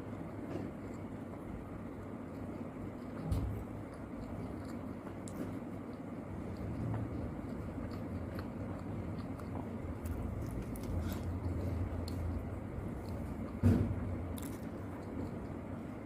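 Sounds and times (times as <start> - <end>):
person chewing food: 0.0 - 16.0
steady low hum: 0.0 - 16.0.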